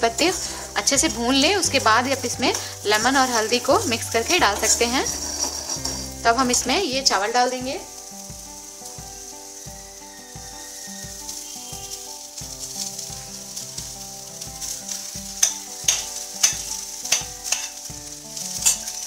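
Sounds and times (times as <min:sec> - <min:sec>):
background music: 0:00.0 - 0:19.0
oil sizzling in a wok: 0:00.0 - 0:19.0
metal pot knocking on wok: 0:15.4 - 0:17.8.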